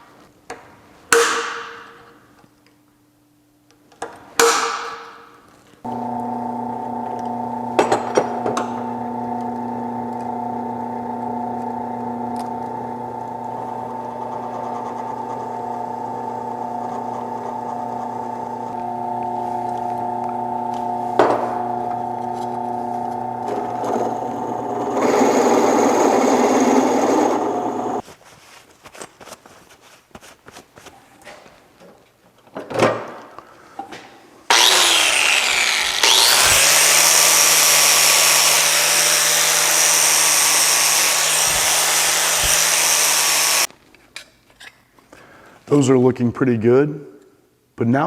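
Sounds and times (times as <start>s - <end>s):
electric drill motor whining: 5.9s - 28.0s, 34.5s - 43.7s
drill bit cutting steel: 18.7s - 28.0s, 34.5s - 43.7s.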